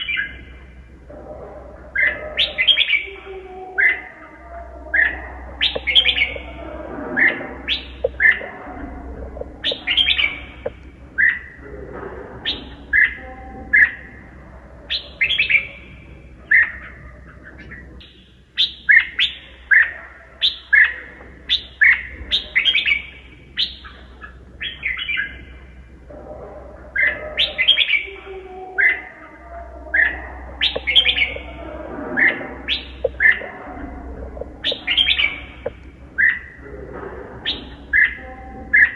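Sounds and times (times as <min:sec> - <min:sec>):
faint low hum: 0:00.0 - 0:38.9
bulbul singing whistled phrases: 0:04.9 - 0:06.6, 0:07.2 - 0:08.5, 0:09.6 - 0:11.6, 0:29.9 - 0:31.6, 0:32.2 - 0:33.5, 0:34.4 - 0:36.6.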